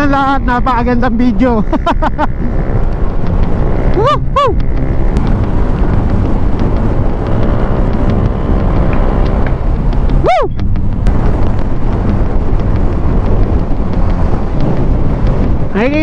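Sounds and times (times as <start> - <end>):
scooter engine running: 0.0 - 16.0
wind noise on microphone: 0.0 - 16.0
swooping tone: 3.3 - 11.1.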